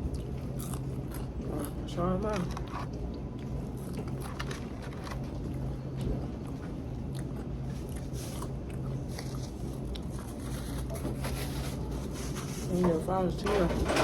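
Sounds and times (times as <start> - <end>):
person chewing fried food: 0.0 - 11.0
steady low hum: 0.0 - 14.0.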